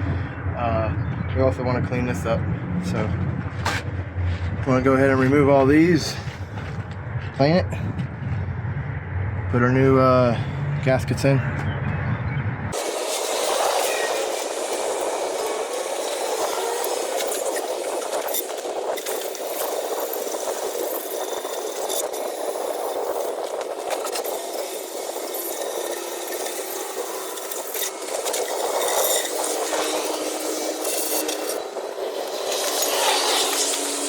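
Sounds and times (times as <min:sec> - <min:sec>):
steady rushing noise: 0:00.0 - 0:34.0
hand tools clicking and rattling: 0:12.8 - 0:34.0.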